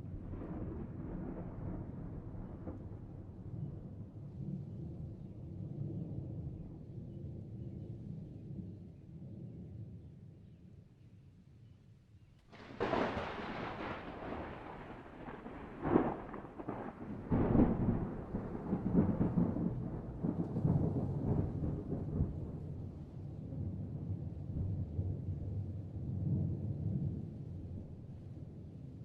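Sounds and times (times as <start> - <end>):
thunder crack and rumble: 0.0 - 6.9, 12.5 - 28.8.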